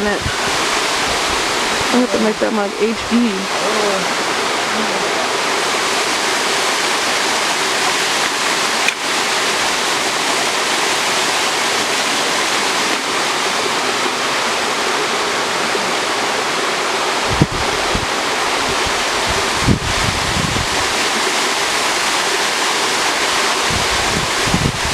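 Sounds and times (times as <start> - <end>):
wind thumping on microphone: 0.0 - 3.4, 17.2 - 21.1, 23.6 - 24.9
waterfall roaring: 0.0 - 24.9.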